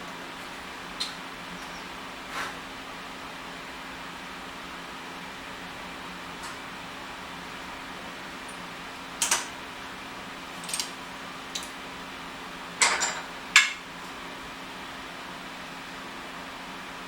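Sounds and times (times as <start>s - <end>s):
fan hum: 0.0s - 17.0s
small metal parts clinking: 10.6s - 11.7s.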